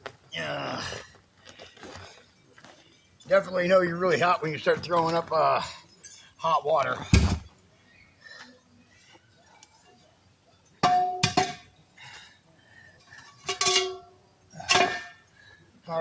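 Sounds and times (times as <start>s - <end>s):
metal tools clanking: 13.0s - 15.2s.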